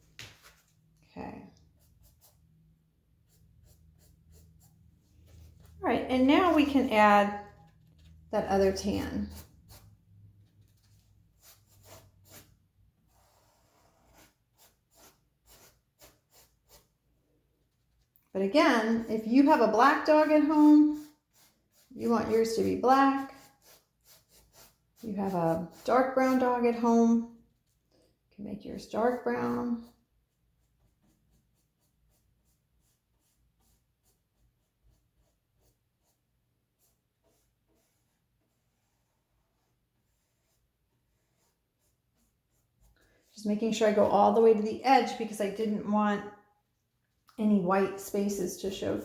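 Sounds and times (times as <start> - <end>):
paintbrush strokes on canvas: 3.2 - 28.1, 28.8 - 45.7.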